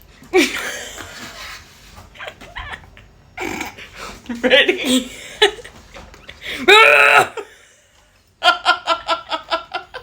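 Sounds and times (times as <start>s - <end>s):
person laughing: 0.3s - 1.3s, 2.1s - 3.1s, 4.0s - 5.8s, 8.4s - 10.0s.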